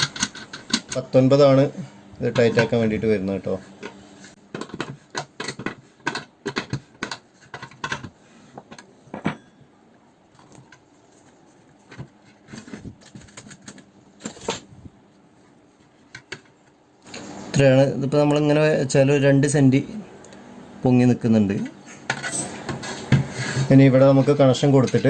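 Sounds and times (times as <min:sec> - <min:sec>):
hardware clicking and tapping: 0:00.0 - 0:01.0, 0:03.8 - 0:09.5.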